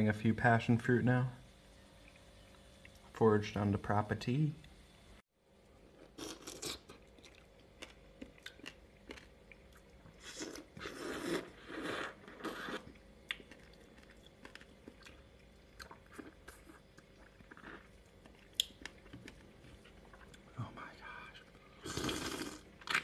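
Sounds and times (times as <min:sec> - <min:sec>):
man chewing: 0:05.8 - 0:20.5, 0:21.9 - 0:23.0.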